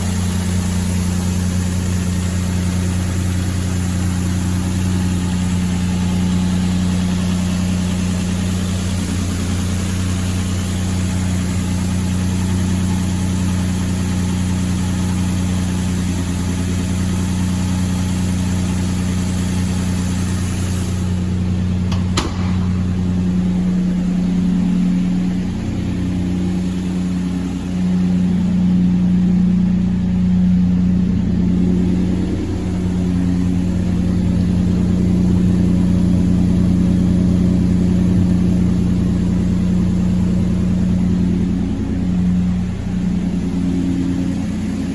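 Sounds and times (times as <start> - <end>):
pickup engine idling: 0.0 - 44.9
sharp click: 21.9 - 22.8.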